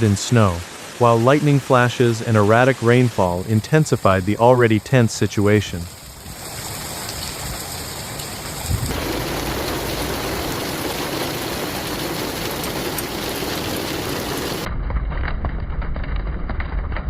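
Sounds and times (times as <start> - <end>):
rain pouring: 0.0 - 14.7
low rumble: 8.7 - 17.0.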